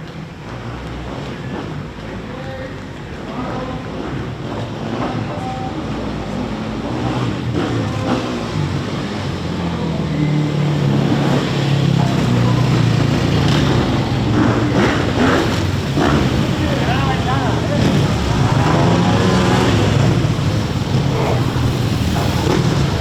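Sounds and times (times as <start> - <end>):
motorcycle engine running: 3.5 - 23.0.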